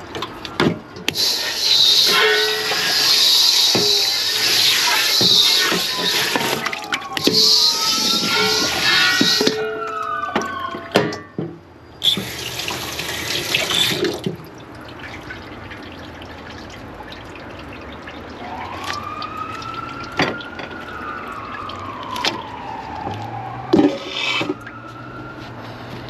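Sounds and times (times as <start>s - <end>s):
siren wailing: 1.4s - 12.5s, 18.0s - 26.0s.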